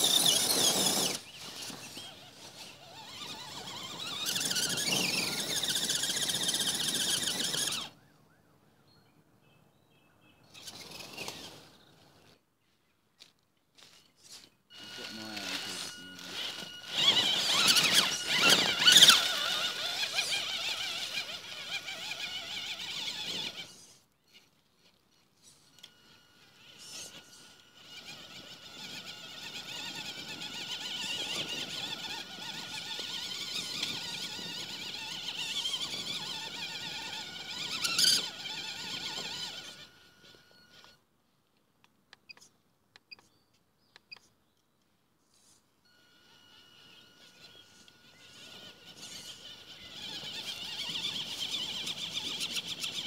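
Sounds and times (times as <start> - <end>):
toy truck motor whining: 0.0 - 8.0, 10.5 - 11.9, 14.3 - 41.0, 45.3 - 53.0
steady high tone: 14.7 - 19.3, 45.9 - 49.4.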